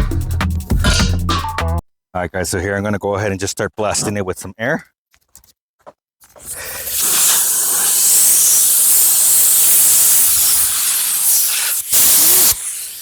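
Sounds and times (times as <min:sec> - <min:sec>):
compressed air hissing from blowgun: 0:06.4 - 0:13.0.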